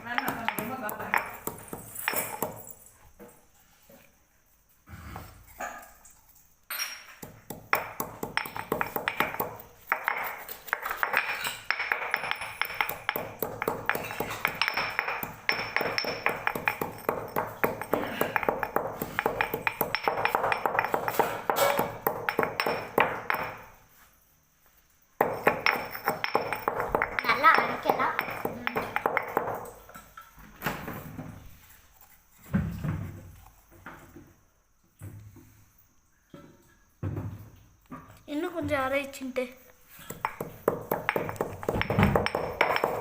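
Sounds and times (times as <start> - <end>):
stone pestle pounding in mortar: 0.0 - 2.7, 7.2 - 23.7, 25.2 - 29.8, 40.1 - 43.0.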